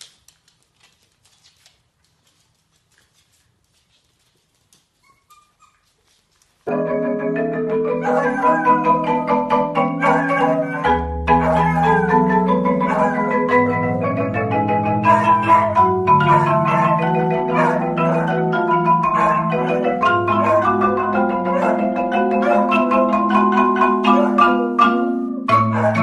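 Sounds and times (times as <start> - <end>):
marimba playing: 6.7 - 26.0
dog howling: 7.9 - 26.0.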